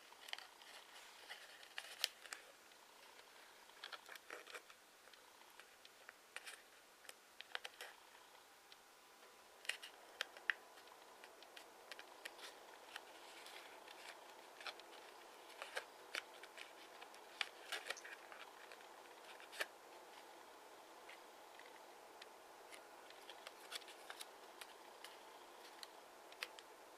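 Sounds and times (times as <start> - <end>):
paper crinkling: 0.0 - 4.8, 9.6 - 20.3, 21.0 - 26.7.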